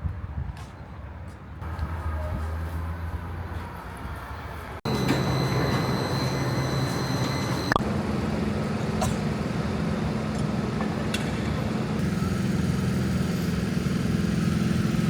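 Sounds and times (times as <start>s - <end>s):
vehicle low hum: 1.6s - 15.0s
high whine: 4.8s - 12.8s.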